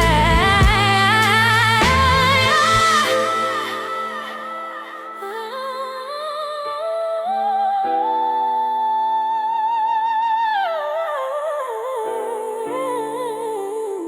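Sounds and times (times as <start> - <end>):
sustained backing chords: 0.0 - 6.0
wordless vocal with vibrato: 0.0 - 14.0.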